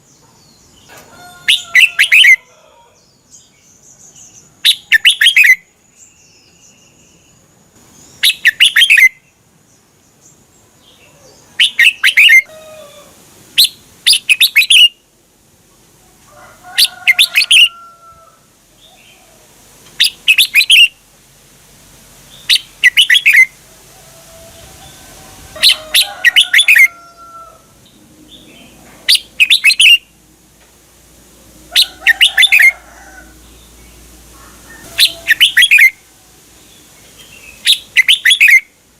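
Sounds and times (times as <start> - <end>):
bird singing warbling phrases: 1.4 - 2.4, 4.0 - 7.4, 8.0 - 9.4, 10.9 - 12.5, 13.6 - 15.0, 16.8 - 17.8, 20.0 - 21.0, 22.3 - 23.6, 25.6 - 26.9, 28.3 - 30.1, 31.7 - 32.8, 34.7 - 36.0, 37.2 - 38.8.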